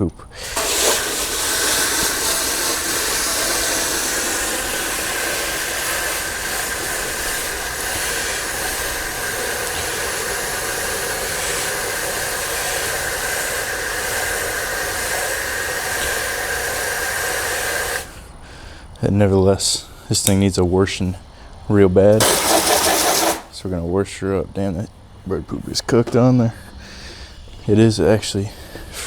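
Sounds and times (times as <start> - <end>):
pressure washer spraying water: 0.0 - 18.3, 22.2 - 23.6.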